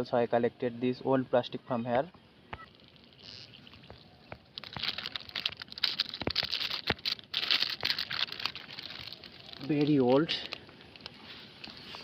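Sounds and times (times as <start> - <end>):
plastic litter crinkling: 2.7 - 12.0.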